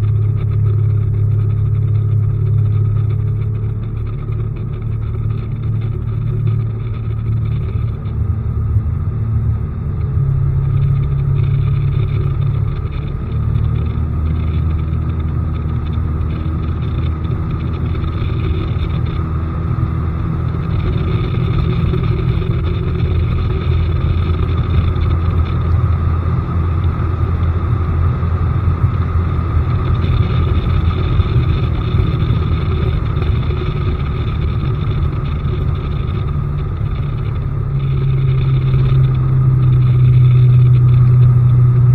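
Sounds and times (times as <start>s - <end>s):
outboard motor droning: 0.0s - 41.9s.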